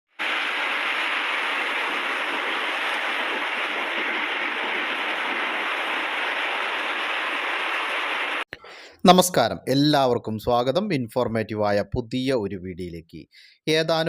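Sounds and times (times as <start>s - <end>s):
heavy rain pouring: 0.1s - 8.5s.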